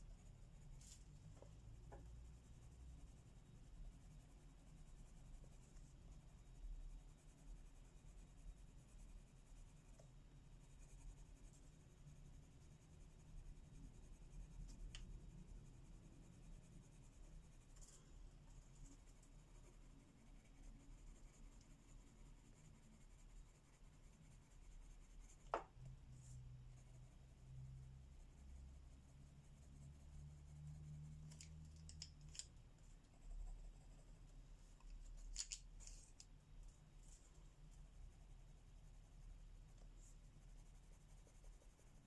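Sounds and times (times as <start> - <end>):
low steady hum: 0.0 - 42.0
pencil scratching on paper: 0.0 - 42.0.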